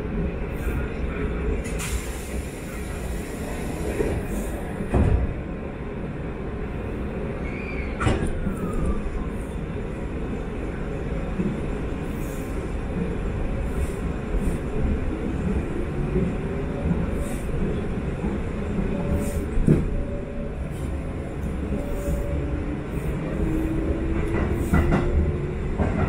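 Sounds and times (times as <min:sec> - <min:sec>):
train wheels rumbling: 0:07.4 - 0:26.0.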